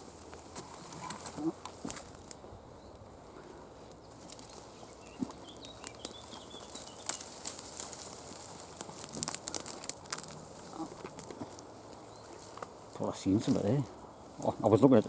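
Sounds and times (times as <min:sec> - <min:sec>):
footsteps through wet grass: 0:03.8 - 0:13.1.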